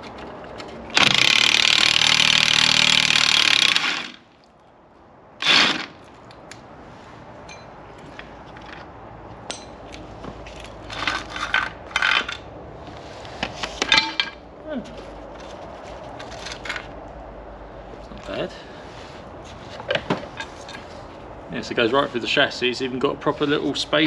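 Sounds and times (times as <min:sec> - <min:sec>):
power tool undoing bolt: 0:00.9 - 0:04.2, 0:05.4 - 0:06.0
light metal clinks: 0:07.5 - 0:07.8.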